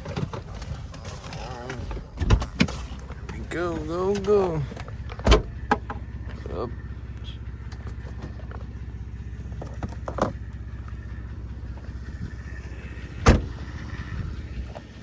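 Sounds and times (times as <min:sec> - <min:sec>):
car engine idling: 0:00.0 - 0:15.0
heavy thump: 0:13.2 - 0:13.9.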